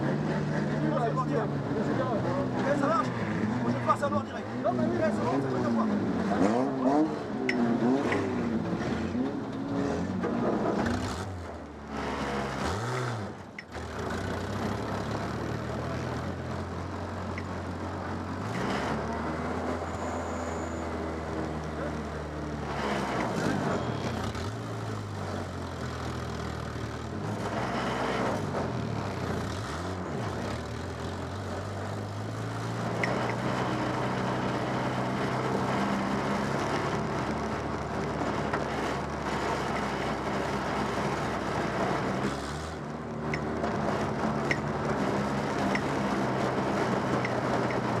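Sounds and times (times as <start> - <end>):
race car engine revving: 0.0 - 48.0.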